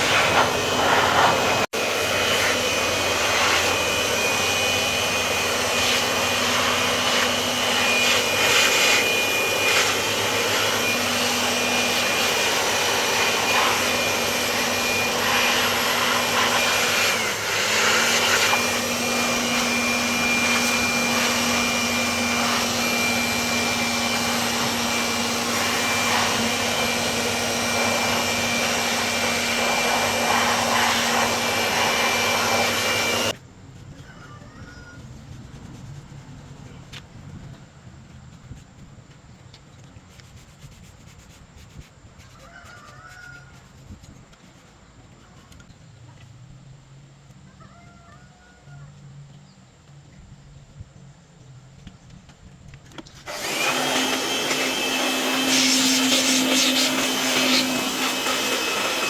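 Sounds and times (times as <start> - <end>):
high-speed electric motor whining: 0.0 - 33.4, 53.2 - 59.0.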